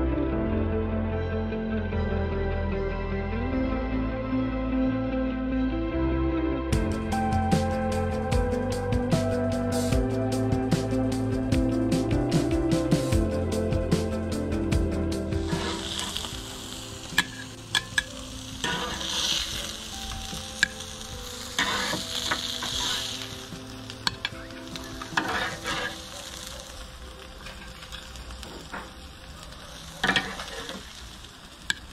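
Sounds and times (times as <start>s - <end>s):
fish sizzling on grill: 11.9s - 31.9s
metal spatula scraping grill: 15.4s - 31.8s.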